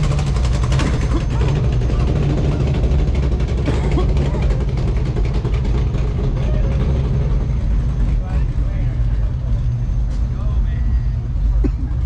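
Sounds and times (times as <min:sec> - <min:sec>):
car engine idling: 0:00.0 - 0:12.0
people talking: 0:03.7 - 0:04.7, 0:06.2 - 0:07.0, 0:08.0 - 0:09.4, 0:10.1 - 0:11.8.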